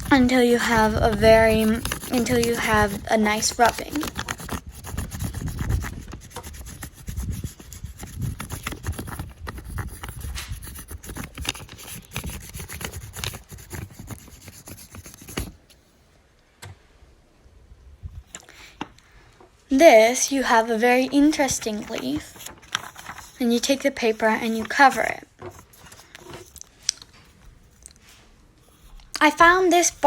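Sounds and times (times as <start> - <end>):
crayon rasping on paper: 0.0 - 15.5.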